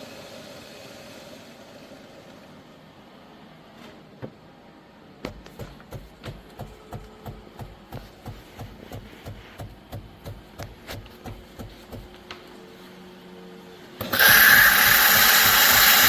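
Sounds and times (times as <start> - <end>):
faint machine hum: 0.0 - 16.0
espresso machine pulsing thump: 14.0 - 16.0.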